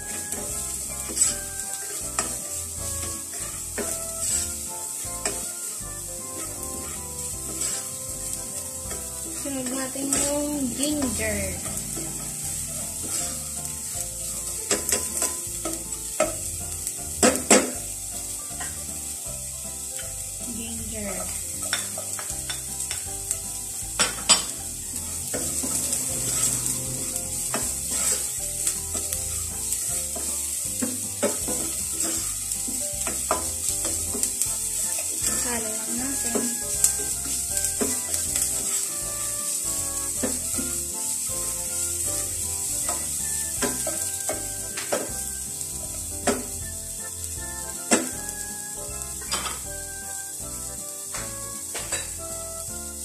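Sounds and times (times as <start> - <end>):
spatula scraping and knocking pot: 0.0 - 18.8, 21.1 - 23.1, 24.0 - 41.5, 42.7 - 45.3, 51.1 - 52.2
onion sizzling in hot oil: 0.0 - 53.0.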